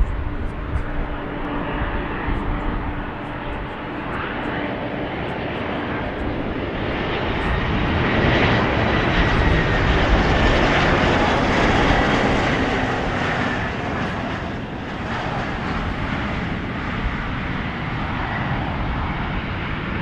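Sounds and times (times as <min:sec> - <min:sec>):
high engine whine: 0:00.0 - 0:19.9
airliner engines rumbling: 0:00.0 - 0:20.0.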